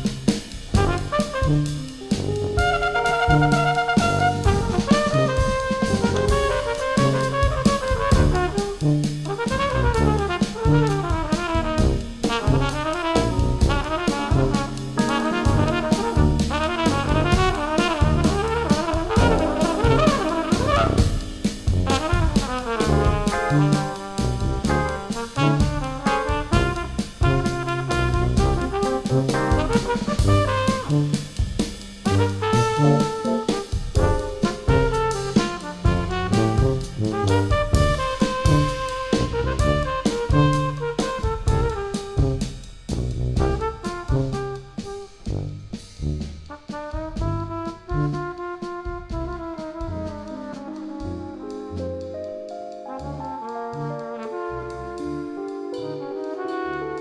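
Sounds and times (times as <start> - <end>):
drum kit: 0.0 - 57.0
jazz brass ensemble playing: 0.0 - 57.0
keyboards: 0.7 - 28.0, 28.8 - 31.0, 32.1 - 41.2, 50.2 - 57.0.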